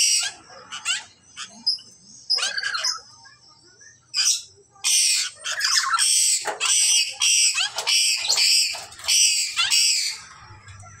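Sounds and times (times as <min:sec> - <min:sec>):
parrot screeching: 0:00.0 - 0:01.6, 0:02.3 - 0:03.0, 0:04.2 - 0:10.3.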